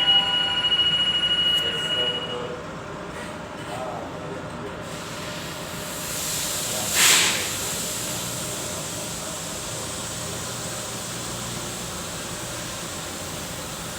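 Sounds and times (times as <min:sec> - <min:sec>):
engine room machinery hum: 0:00.0 - 0:13.9
short loud hiss: 0:05.9 - 0:08.2.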